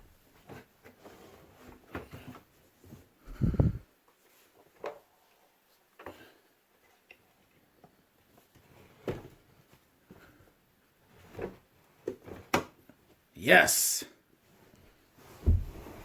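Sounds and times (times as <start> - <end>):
heavy thump: 15.4 - 16.0.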